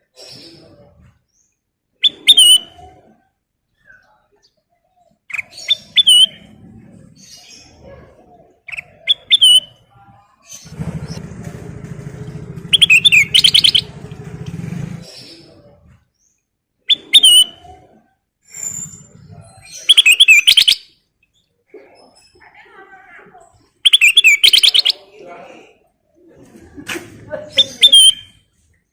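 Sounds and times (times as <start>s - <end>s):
bird chirping: 0.0s - 22.6s, 23.4s - 25.2s
low droning rumble: 10.7s - 15.1s.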